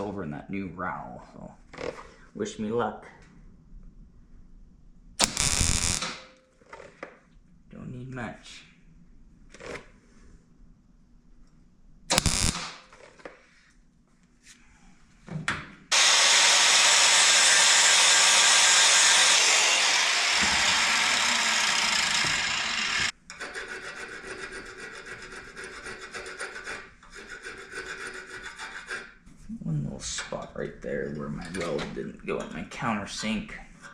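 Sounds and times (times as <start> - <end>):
welding arc crackling hiss: 5.2 - 6.2, 12.1 - 12.8, 15.9 - 23.1.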